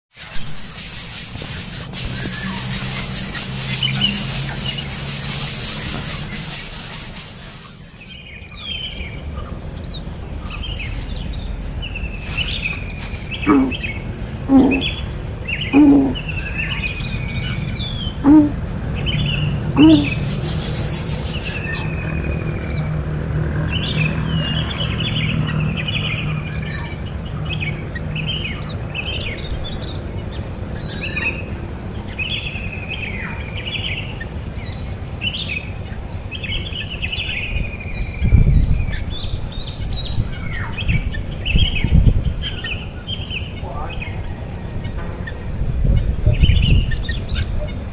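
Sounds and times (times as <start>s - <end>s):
small birds chirping: 0.2s - 22.9s, 23.7s - 47.9s
high insect drone: 0.2s - 47.9s
loud short low calls: 13.4s - 15.0s, 15.6s - 16.4s, 18.2s - 18.6s, 19.7s - 20.3s.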